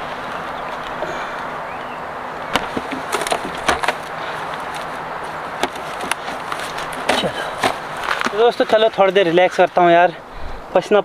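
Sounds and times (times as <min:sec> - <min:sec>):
steady outdoor hiss: 0:00.0 - 0:11.0
sharp clicks and knocks: 0:02.5 - 0:04.9, 0:05.6 - 0:08.8.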